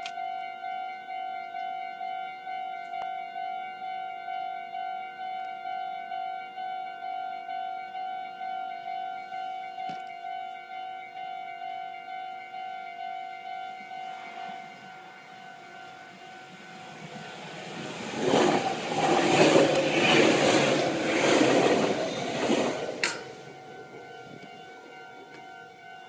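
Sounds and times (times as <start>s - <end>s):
train passing rumble: 12.9s - 26.0s.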